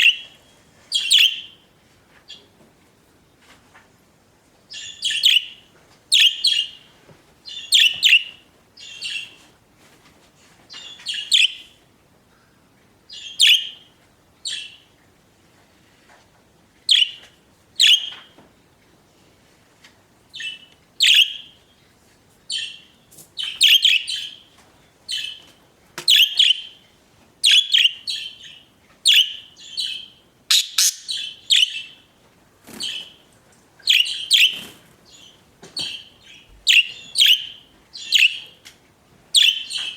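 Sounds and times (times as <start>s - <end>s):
budgerigars chirping: 1.0s - 1.5s, 17.8s - 18.2s, 20.4s - 21.5s, 26.1s - 26.8s, 27.4s - 32.0s, 33.9s - 38.5s, 39.4s - 39.9s.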